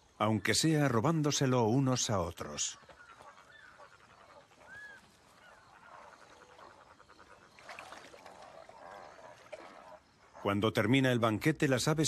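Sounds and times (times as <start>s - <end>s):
faint bird calls: 2.1s - 10.8s.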